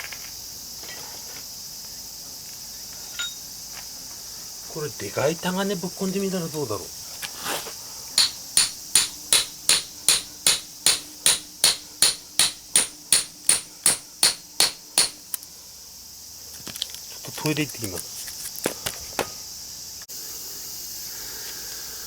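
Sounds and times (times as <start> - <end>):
crickets chirping: 0.0 - 22.0
hammer striking chisel on iron: 8.2 - 15.3.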